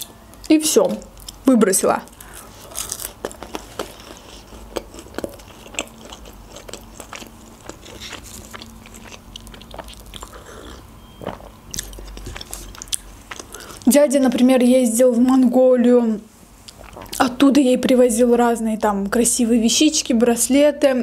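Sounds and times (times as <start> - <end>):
chewing with soft crunches: 2.1 - 13.9, 16.6 - 17.3.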